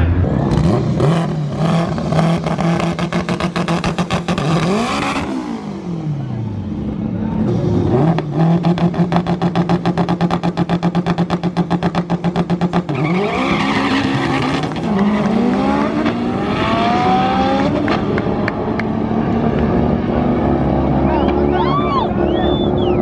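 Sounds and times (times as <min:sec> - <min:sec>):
race car accelerating through gears: 0:07.3 - 0:23.0.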